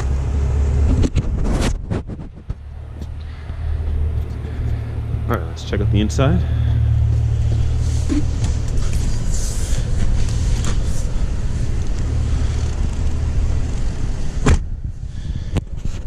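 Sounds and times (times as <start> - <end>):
engine idling: 2.6 - 15.9
car door shutting: 13.6 - 14.8.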